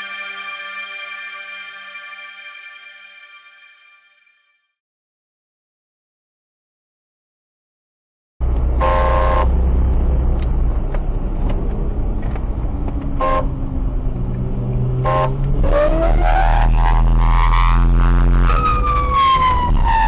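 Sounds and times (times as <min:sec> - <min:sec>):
vehicle engine running hard: 0:08.4 - 0:20.0
car horn: 0:08.7 - 0:09.7, 0:13.1 - 0:13.8, 0:14.9 - 0:18.6
police siren wailing: 0:15.1 - 0:20.0.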